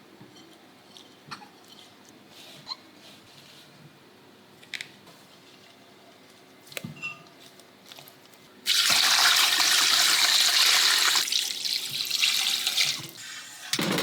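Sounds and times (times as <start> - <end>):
tap water running into sink: 8.7 - 13.2.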